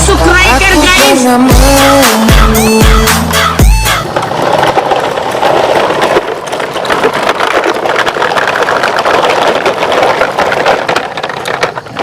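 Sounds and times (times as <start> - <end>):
toy truck wheels rattling: 1.1 - 12.0.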